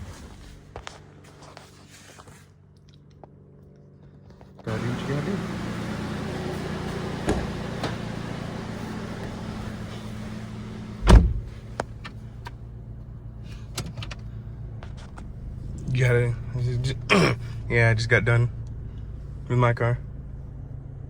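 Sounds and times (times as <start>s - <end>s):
heavy thump: 5.4s - 12.0s.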